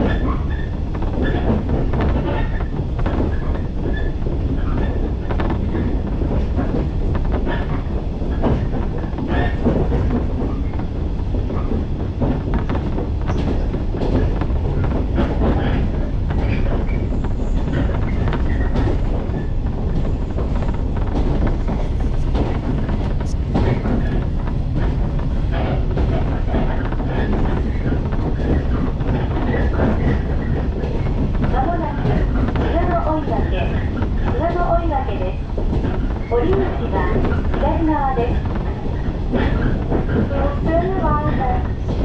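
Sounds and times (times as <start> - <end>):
train running rumble: 0.0 - 42.0
wheels clicking on track: 0.0 - 42.0.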